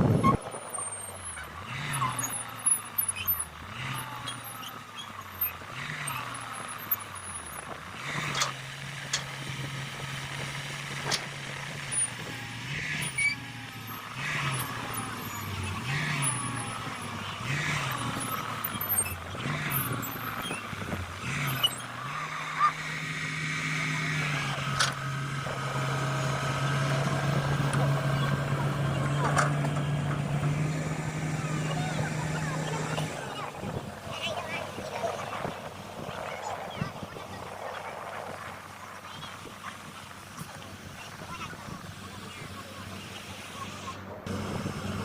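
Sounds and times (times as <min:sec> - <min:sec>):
diesel excavator engine revving: 0:00.0 - 0:45.0.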